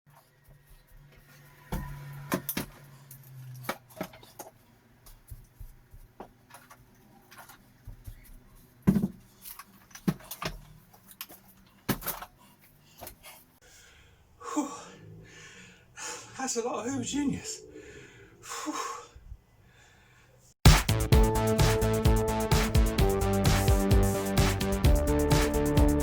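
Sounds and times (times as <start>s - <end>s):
hard objects knocking and rattling: 8.8s - 9.3s.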